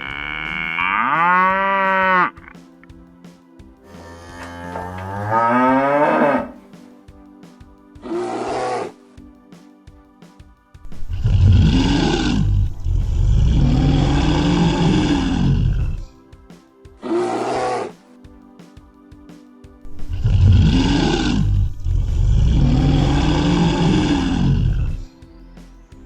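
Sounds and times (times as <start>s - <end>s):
soft background music: 0.0s - 26.0s
lion roaring: 4.3s - 6.6s, 11.3s - 16.0s, 17.1s - 18.0s, 20.2s - 25.0s.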